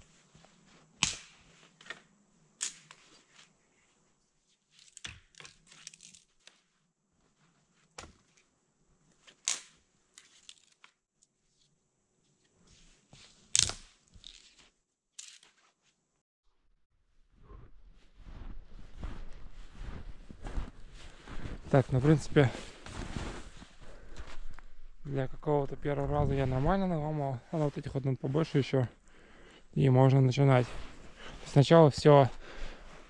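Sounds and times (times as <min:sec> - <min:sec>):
dry branches snapping: 0:01.0 - 0:02.0, 0:02.6 - 0:03.0, 0:04.8 - 0:06.2, 0:09.4 - 0:11.0, 0:13.5 - 0:14.4.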